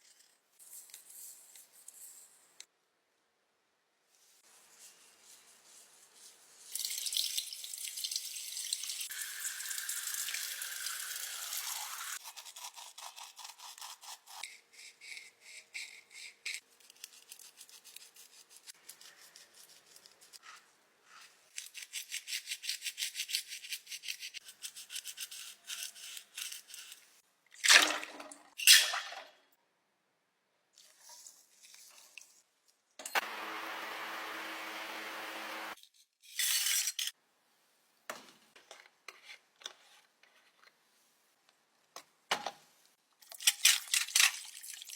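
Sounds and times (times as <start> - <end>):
small tool scratching makeup: 12.2 - 27.1.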